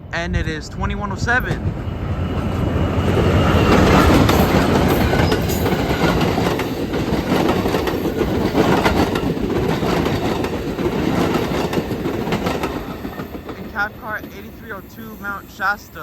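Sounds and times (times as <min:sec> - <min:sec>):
diesel locomotive passing: 0:00.0 - 0:16.0
train wheels clacking over rail joints: 0:02.4 - 0:14.9.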